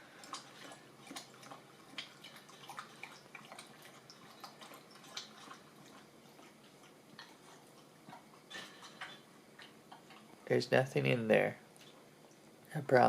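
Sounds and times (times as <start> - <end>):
dog lapping water: 0.1 - 10.4.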